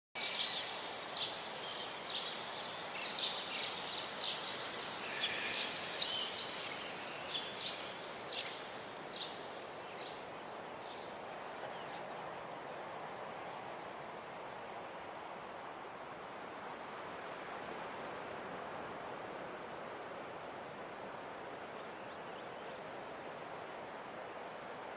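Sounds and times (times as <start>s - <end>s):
birds chirping and calling: 0.2s - 9.5s.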